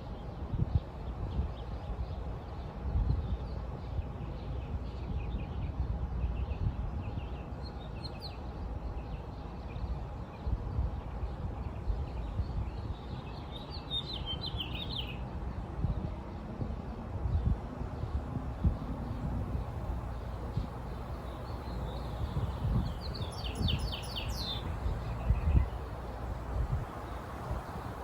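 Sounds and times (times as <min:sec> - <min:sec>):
small birds chirping: 0:11.2 - 0:15.2, 0:18.0 - 0:28.0.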